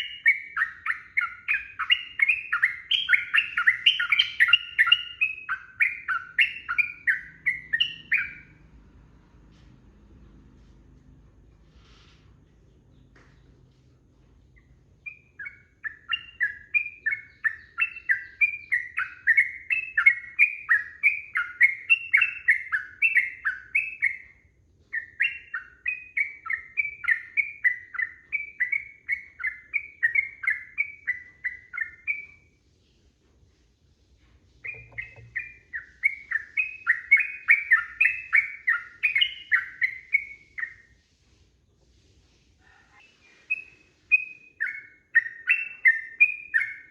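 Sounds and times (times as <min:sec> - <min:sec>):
bulbul singing: 0:00.0 - 0:08.7, 0:14.6 - 0:32.5, 0:34.6 - 0:40.9, 0:43.0 - 0:46.9.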